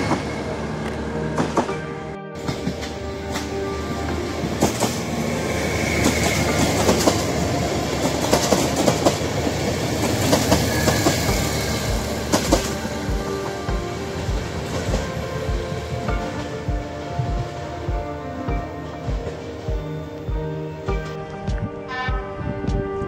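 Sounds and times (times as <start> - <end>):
passenger train rumbling past: 0.0 - 23.0
wheels clacking over rail joints: 2.4 - 17.2.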